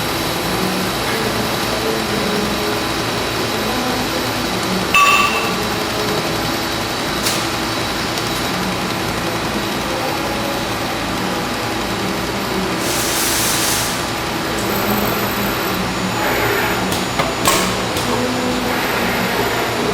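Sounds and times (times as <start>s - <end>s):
welding machine hum: 0.0s - 19.9s
hiss burst: 12.8s - 14.2s.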